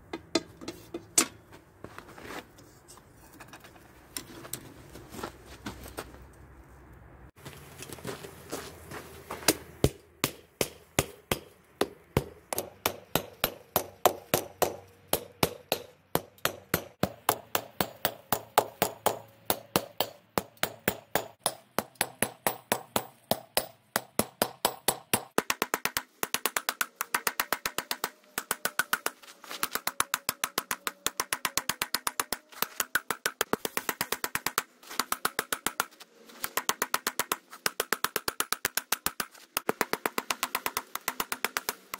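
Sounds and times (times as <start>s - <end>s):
hammer striking steel on anvil: 9.5s - 26.0s.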